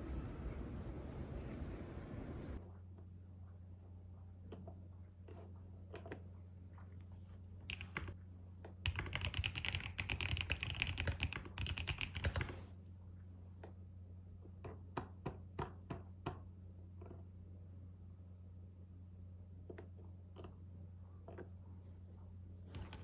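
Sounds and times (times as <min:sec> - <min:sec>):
steady low hum: 0:00.0 - 0:10.0
typing on a keyboard: 0:07.7 - 0:08.2, 0:08.8 - 0:12.6.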